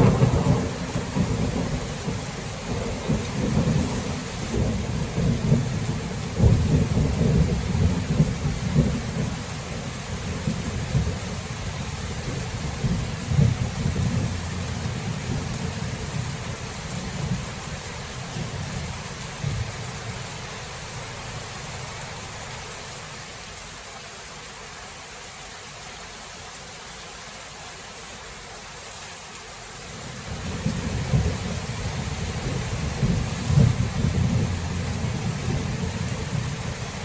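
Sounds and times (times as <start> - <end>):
rolling thunder: 0.0 - 9.4, 10.2 - 19.9, 30.2 - 37.0
heavy rain hissing: 0.0 - 37.0.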